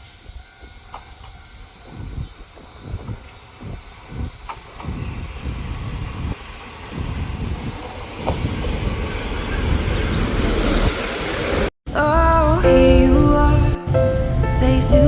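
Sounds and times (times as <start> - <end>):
train rumbling on track: 0.0 - 11.7.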